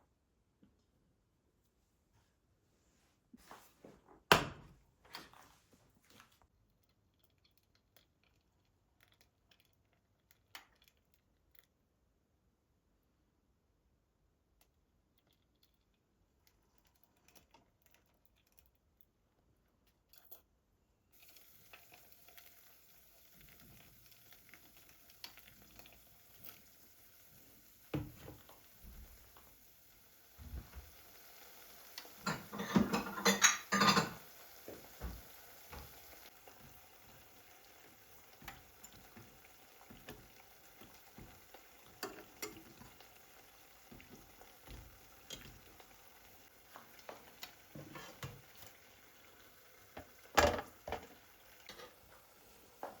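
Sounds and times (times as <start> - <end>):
loud clattering of dishes: 32.2 - 34.2
utensils and dishes clicking: 32.2 - 34.2.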